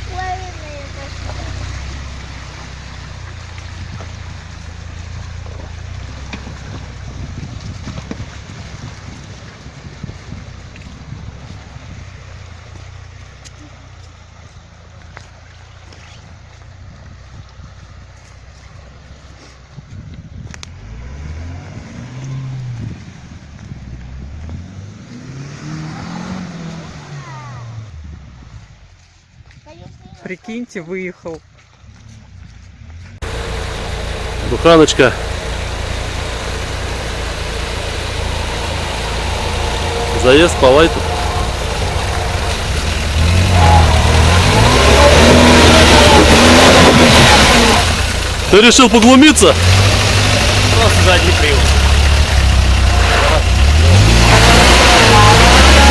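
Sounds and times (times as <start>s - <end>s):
wheels churning mud: 0.0s - 55.9s
van engine revving hard: 20.8s - 23.0s, 24.6s - 27.9s, 33.2s - 55.9s.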